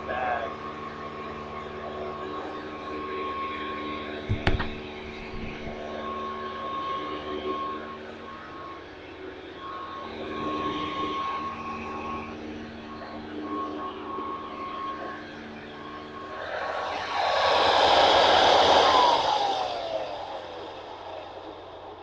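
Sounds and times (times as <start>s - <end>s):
vacuum cleaner motor whining: 1.5s - 17.2s
sharp knock: 4.3s - 5.8s.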